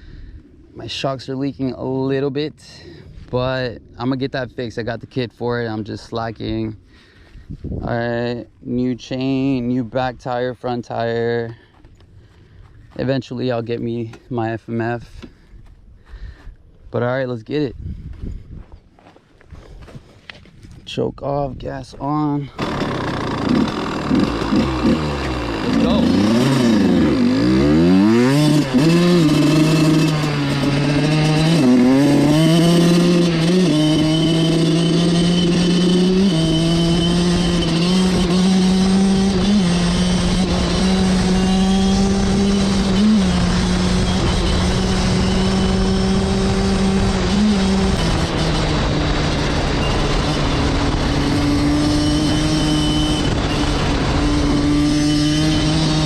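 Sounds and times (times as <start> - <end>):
dirt bike engine: 22.0 - 56.0.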